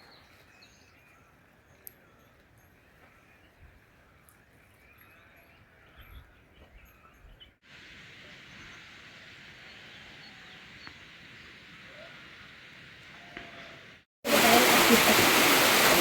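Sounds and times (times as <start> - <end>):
faint birdsong: 0.0 - 12.4
rushing water: 14.2 - 16.0.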